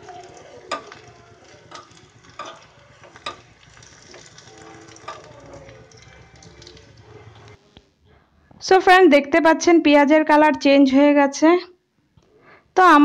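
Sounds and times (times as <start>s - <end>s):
onions sizzling in hot oil: 0.0s - 7.6s
spatula clicking against pan: 0.1s - 7.0s.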